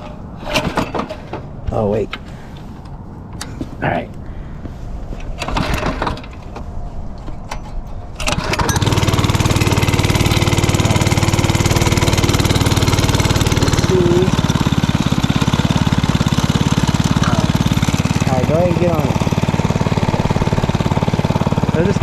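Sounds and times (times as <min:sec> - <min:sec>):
mini bike engine pull-started: 0:05.4 - 0:06.4, 0:08.2 - 0:22.0
mini bike engine running: 0:08.3 - 0:22.0.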